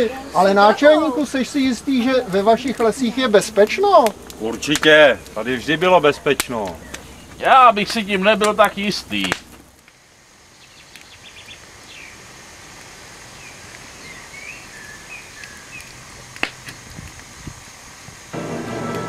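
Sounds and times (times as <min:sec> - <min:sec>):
small birds chirping: 0:00.0 - 0:09.7, 0:10.4 - 0:12.4, 0:13.1 - 0:17.6
soft steady hiss: 0:00.0 - 0:19.0
music: 0:18.4 - 0:19.0.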